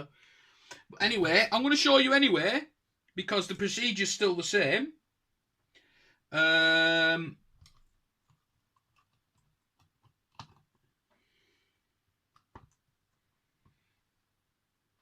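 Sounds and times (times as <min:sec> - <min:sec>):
faint plastic clicks and taps: 0:12.3 - 0:13.9.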